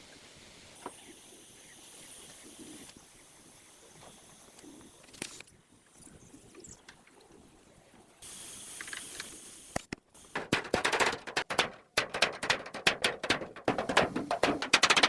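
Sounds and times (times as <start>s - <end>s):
short hiss: 8.2s - 10.4s
sharp knocks or clatter: 10.4s - 15.0s.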